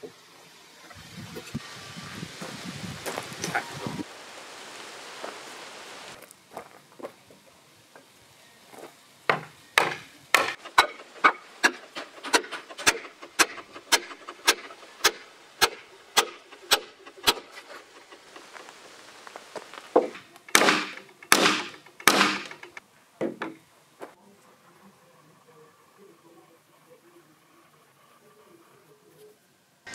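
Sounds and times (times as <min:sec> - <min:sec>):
hammer knocking wooden wedge: 0:09.3 - 0:17.5, 0:20.0 - 0:23.6.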